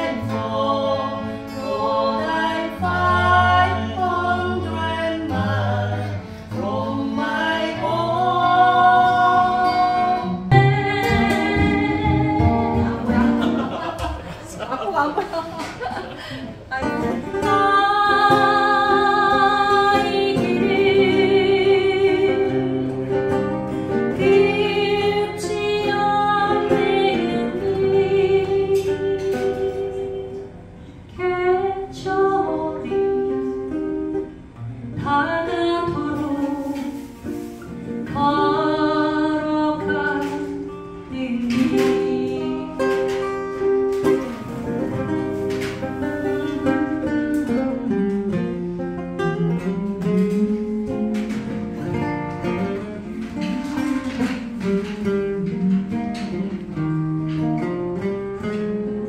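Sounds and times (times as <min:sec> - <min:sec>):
person singing: 0:00.0 - 0:14.0, 0:16.7 - 0:23.3, 0:24.1 - 0:30.5, 0:38.1 - 0:43.2
plucked acoustic guitar: 0:00.0 - 0:59.0.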